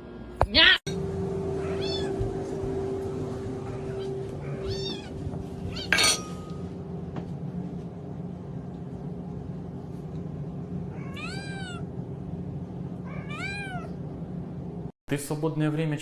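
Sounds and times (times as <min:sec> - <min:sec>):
cat meowing: 0:01.6 - 0:02.2, 0:04.5 - 0:05.1, 0:11.0 - 0:11.8, 0:13.1 - 0:14.0.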